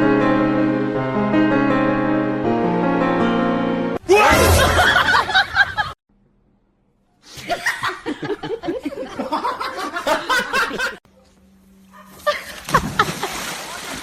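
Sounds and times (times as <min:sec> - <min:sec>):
people laughing and snickering: 0:07.3 - 0:11.0.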